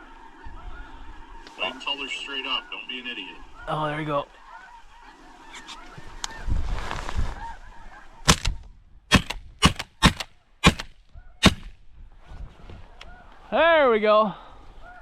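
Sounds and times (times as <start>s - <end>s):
geese honking: 2.1s - 6.0s
sharp loud cracks: 8.3s - 11.8s.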